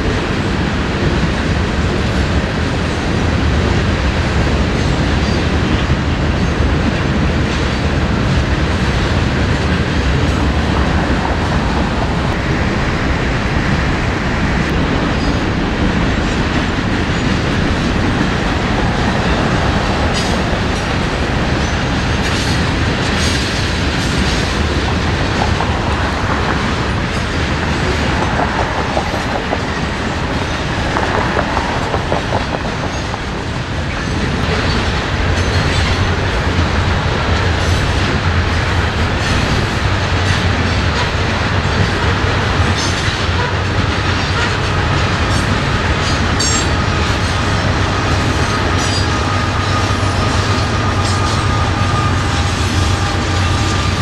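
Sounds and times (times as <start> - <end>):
low rumble: 10.1 - 23.2
train wheels clicking over rail joints: 14.7 - 54.0.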